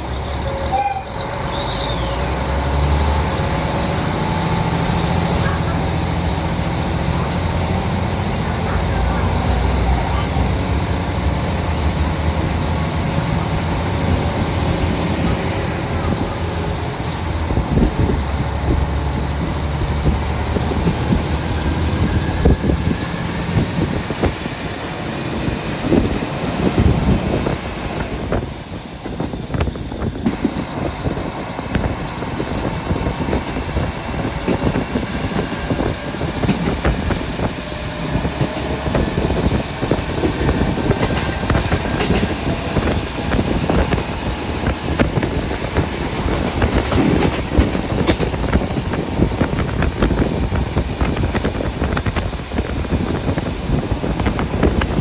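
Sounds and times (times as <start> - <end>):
high wheel squeal: 0.0 - 55.0
train wheels rumbling on track: 0.0 - 55.0.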